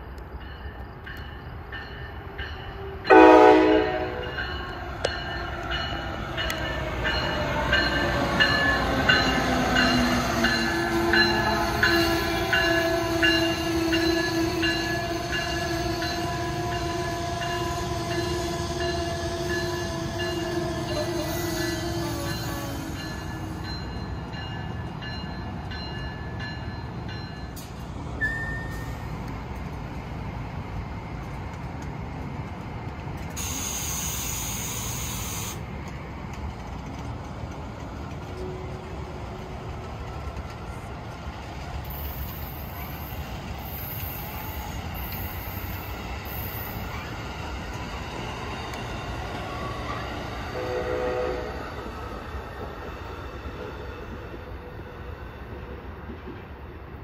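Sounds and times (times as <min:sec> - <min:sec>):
train rumbling past: 0:00.0 - 0:57.0
low train horn blast: 0:03.1 - 0:04.4, 0:50.4 - 0:51.9.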